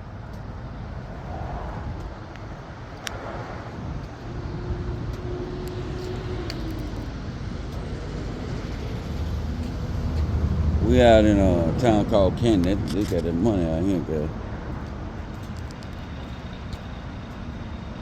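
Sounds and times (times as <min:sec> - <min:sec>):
outdoor background rumble: 0:00.0 - 0:18.0
light clicks: 0:12.5 - 0:13.6, 0:14.7 - 0:17.5.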